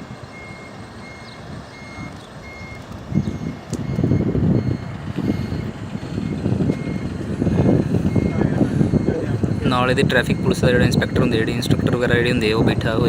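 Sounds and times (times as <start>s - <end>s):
truck reversing alarm beeping: 0.0s - 13.0s
low rumble: 3.2s - 13.0s.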